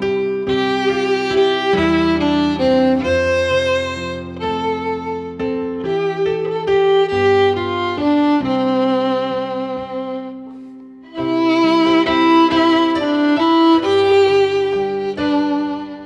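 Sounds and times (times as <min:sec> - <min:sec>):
low string or keyboard accompaniment: 0:00.0 - 0:16.0
violin melody with vibrato: 0:00.0 - 0:16.0.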